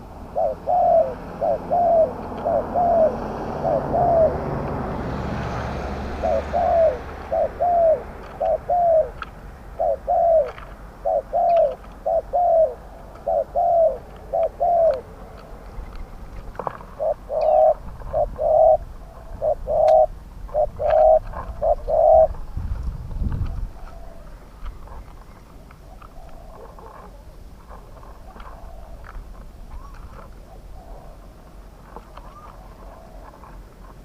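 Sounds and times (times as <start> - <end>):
doves cooing: 0.0 - 22.6, 23.4 - 34.0.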